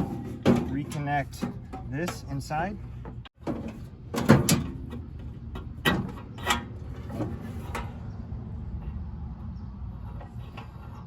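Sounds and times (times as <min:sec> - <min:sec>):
grill parts knocking and clattering: 0:00.0 - 0:08.0.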